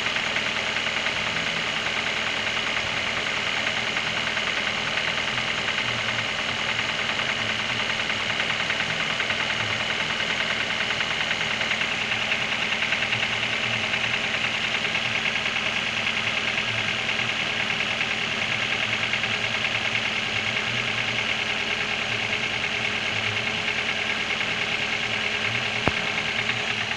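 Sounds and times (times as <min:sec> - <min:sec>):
car engine idling with knocking: 0:00.0 - 0:26.9.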